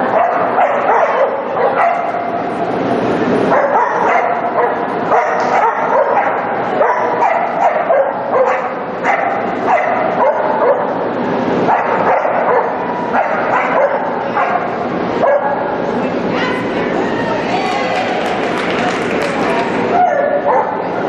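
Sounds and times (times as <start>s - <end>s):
dog barking and yipping: 0.0s - 2.3s, 3.5s - 11.0s, 11.7s - 15.7s, 20.0s - 20.8s
steady background noise: 0.0s - 21.0s.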